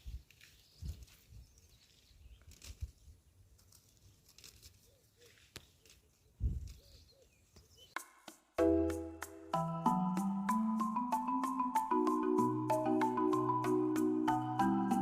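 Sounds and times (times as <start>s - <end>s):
faint outdoor rustling: 0.0s - 11.9s
soft bird chirps: 0.4s - 3.2s, 4.8s - 8.0s
mallet percussion music: 8.0s - 15.0s.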